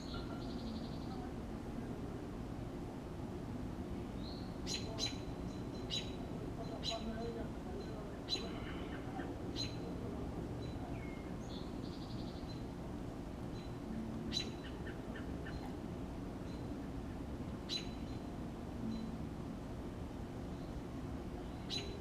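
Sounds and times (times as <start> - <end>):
bird trill: 0.0 - 1.2, 4.2 - 9.8, 13.5 - 15.7, 17.7 - 19.2, 21.4 - 22.0
birds chirping: 0.0 - 2.0, 4.0 - 19.5, 20.1 - 22.0
steady low hum: 0.0 - 22.0.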